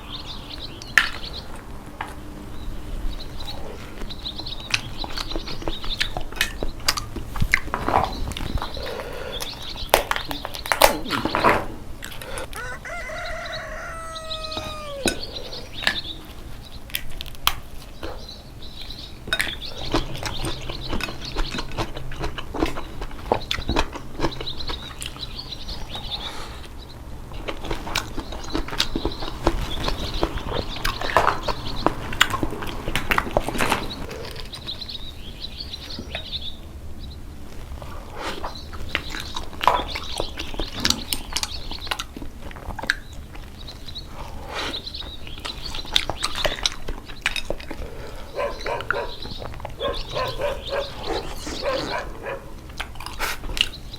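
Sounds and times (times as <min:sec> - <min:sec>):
drawn-out pitched call: 0:12.3 - 0:15.8, 0:48.0 - 0:52.6
slurping and chewing: 0:19.4 - 0:25.2.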